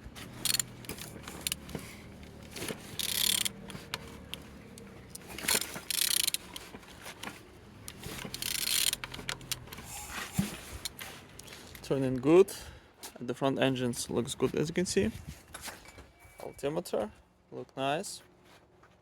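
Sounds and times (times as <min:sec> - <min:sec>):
engine and tool clicks and knocks: 0:00.0 - 0:12.3.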